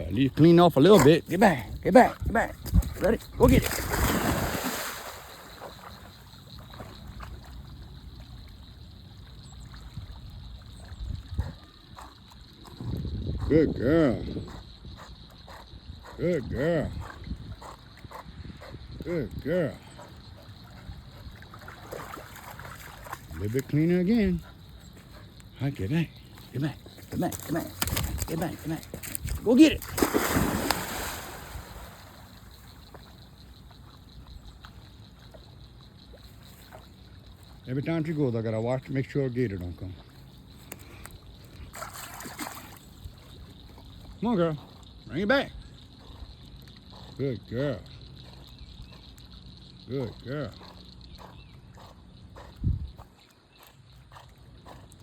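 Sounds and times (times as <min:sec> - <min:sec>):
water trickling and splashing: 0:01.2 - 0:12.7, 0:20.3 - 0:37.6, 0:39.9 - 0:44.3
dog plunging into water: 0:02.6 - 0:07.6, 0:21.5 - 0:23.4, 0:27.1 - 0:32.7, 0:41.7 - 0:43.0.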